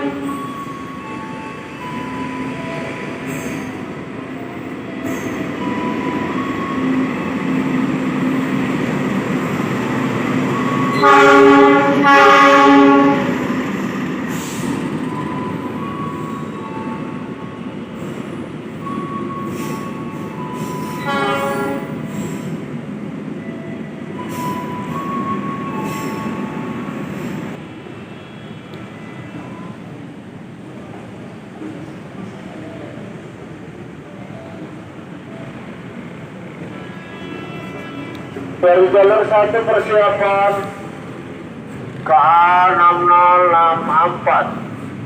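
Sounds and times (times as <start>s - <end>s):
train horn blasts: 0.0s - 0.4s, 10.9s - 13.3s, 21.0s - 22.0s, 36.6s - 38.4s
train rolling rumble: 0.0s - 45.0s.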